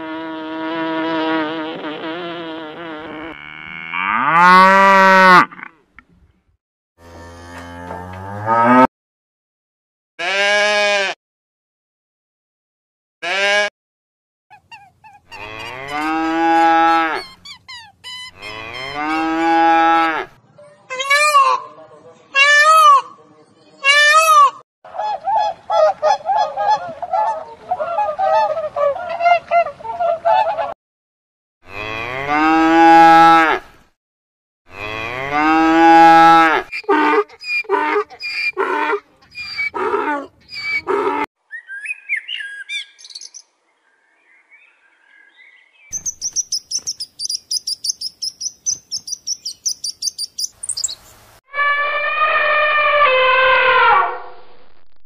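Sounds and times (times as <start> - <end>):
meerkat chirping: 14.5 - 15.4, 17.2 - 18.5, 45.9 - 50.8
peacock calls: 14.5 - 19.0, 45.9 - 54.4
horse calls: 14.5 - 19.6
elephant trumpeting: 51.5 - 54.3.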